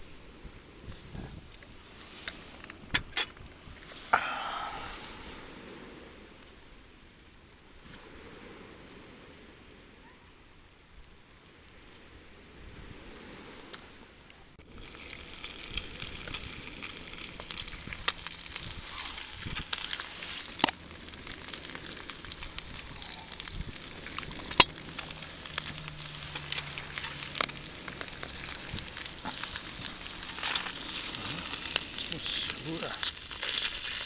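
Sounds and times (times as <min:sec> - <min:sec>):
food sizzling with pops: 0:14.6 - 0:34.0.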